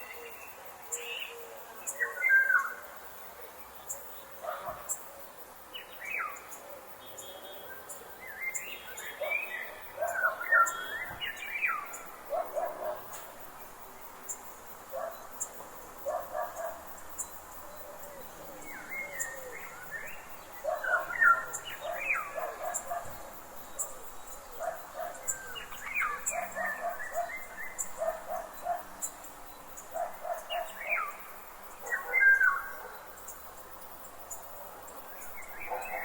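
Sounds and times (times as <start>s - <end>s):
faint steady background hiss: 0.0s - 36.0s
birds singing whistled notes: 5.8s - 13.4s, 14.9s - 33.4s, 34.3s - 36.0s.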